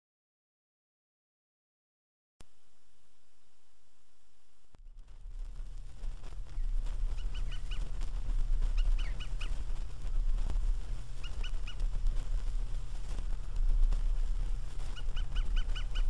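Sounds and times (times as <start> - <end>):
low countryside rumble: 2.4 - 16.0
bird calling short notes: 6.6 - 7.9, 8.7 - 9.7.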